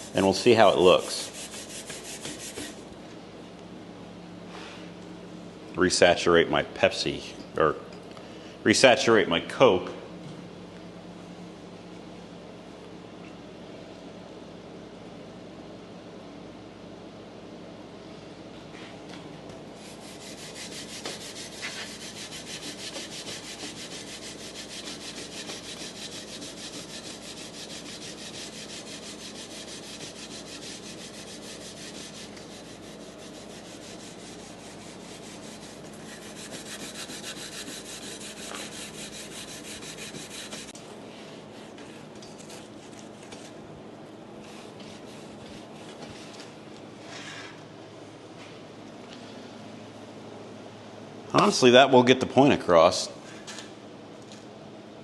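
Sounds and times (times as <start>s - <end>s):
scrubber rasping on metal: 19.8s - 40.7s.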